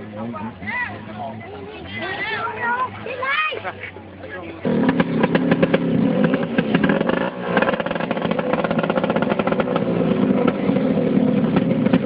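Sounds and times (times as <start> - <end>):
racing boat engine roaring: 0.0 - 12.0.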